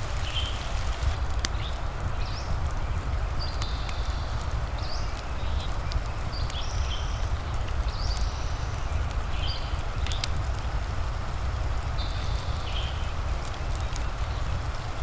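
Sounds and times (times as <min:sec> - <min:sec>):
bird chirping: 0:00.0 - 0:02.4
fireplace crackling: 0:00.0 - 0:12.0
rain hiss: 0:00.0 - 0:15.0.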